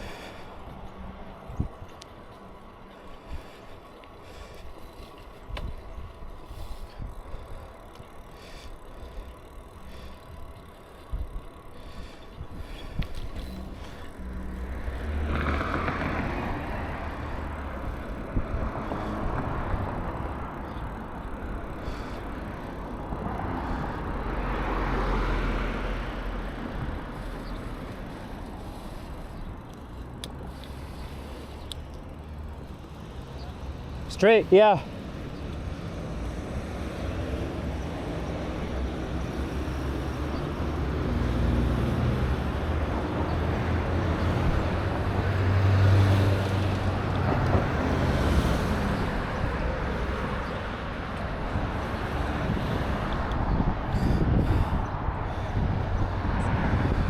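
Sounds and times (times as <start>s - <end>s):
traffic noise: 0.0s - 57.0s
wind rumble on microphone: 1.3s - 2.0s, 12.3s - 21.1s, 50.6s - 57.0s.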